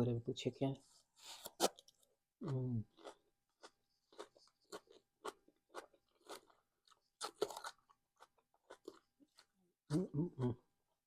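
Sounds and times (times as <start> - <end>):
crunchy chewing of salad: 2.9 - 10.1.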